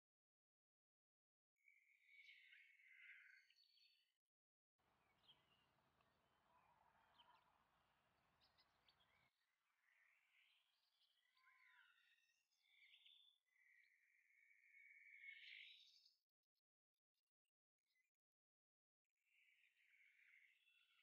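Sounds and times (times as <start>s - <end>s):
faint birds chirping: 1.6s - 4.2s, 4.8s - 16.2s, 19.3s - 21.0s.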